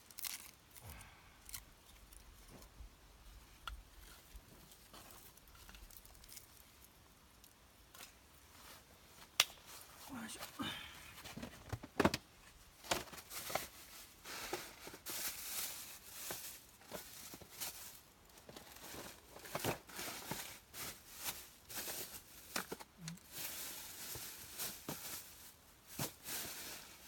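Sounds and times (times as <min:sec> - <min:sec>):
dry kindling rustling and snapping: 0:00.0 - 0:09.9.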